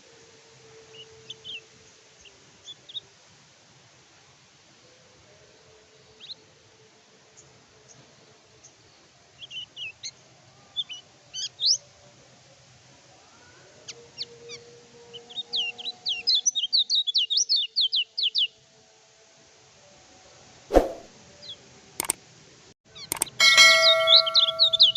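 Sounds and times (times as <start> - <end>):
bird chirping: 23.0 - 24.9.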